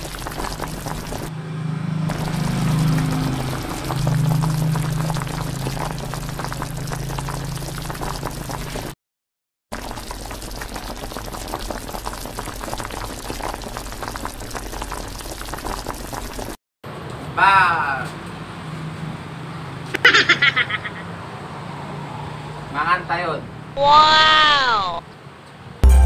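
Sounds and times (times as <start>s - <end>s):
pot boiling and bubbling: 0.0s - 1.3s, 2.0s - 9.0s, 9.7s - 16.6s.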